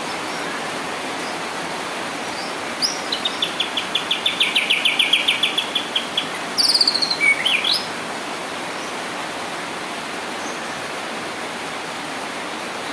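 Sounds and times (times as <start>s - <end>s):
bird singing: 2.4s - 7.9s.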